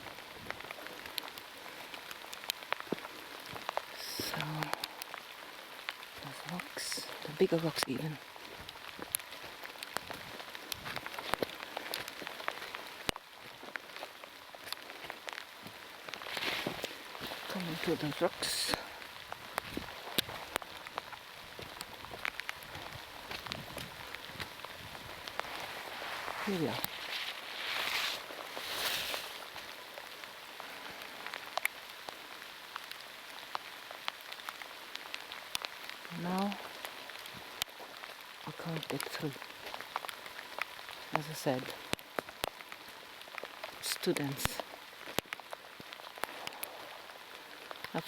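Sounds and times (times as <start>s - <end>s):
heavy rain hiss: 0.0s - 48.0s
raindrop ticks: 0.0s - 48.0s
short rustle: 25.2s - 29.7s.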